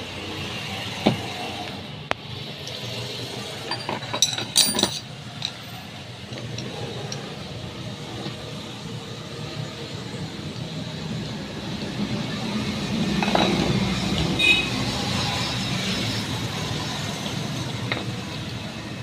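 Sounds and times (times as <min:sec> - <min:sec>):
ringing metallic clinks: 0:03.7 - 0:05.6.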